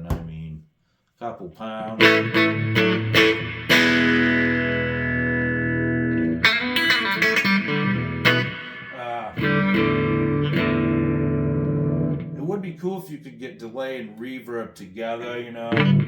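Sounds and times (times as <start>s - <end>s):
electric guitar chords and picked notes: 1.9s - 12.4s, 15.7s - 16.0s.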